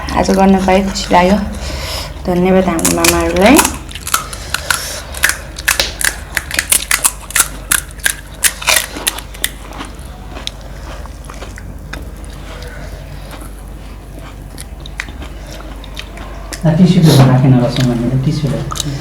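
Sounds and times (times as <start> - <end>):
crunching and chewing food: 0.0 - 19.0.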